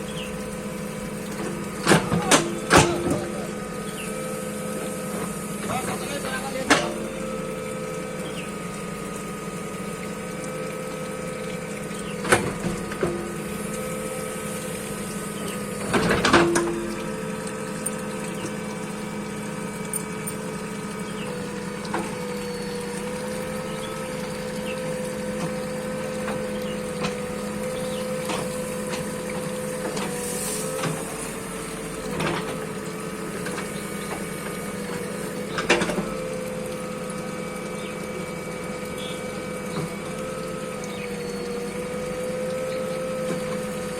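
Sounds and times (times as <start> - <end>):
bulldozer engine running: 0.0 - 43.9
short clanks: 1.2 - 4.0.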